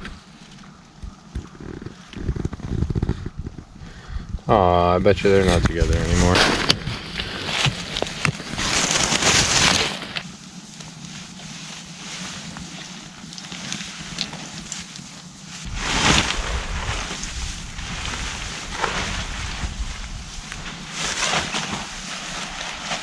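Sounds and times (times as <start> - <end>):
steady outdoor hiss: 0.0 - 23.0
wind gusting over microphone: 15.6 - 22.1.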